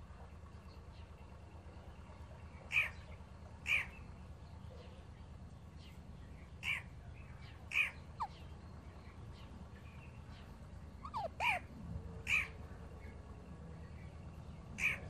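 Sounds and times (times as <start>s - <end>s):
parakeets squawking: 6.6s - 6.9s, 7.7s - 8.5s, 11.0s - 12.6s, 14.8s - 15.0s.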